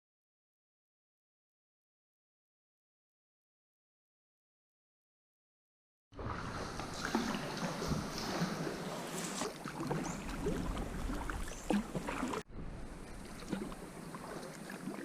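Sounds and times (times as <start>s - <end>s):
water splashing around kayak: 6.2s - 15.0s.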